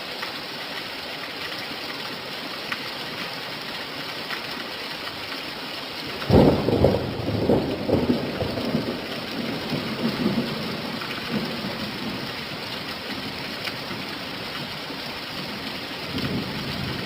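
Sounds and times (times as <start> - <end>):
steady rain: 0.0 - 17.0
thunder rumbling: 6.2 - 12.6.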